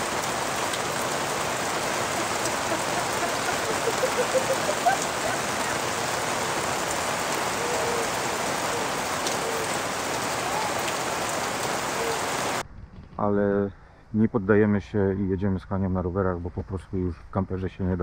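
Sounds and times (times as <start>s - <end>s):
rain falling: 0.0s - 12.6s.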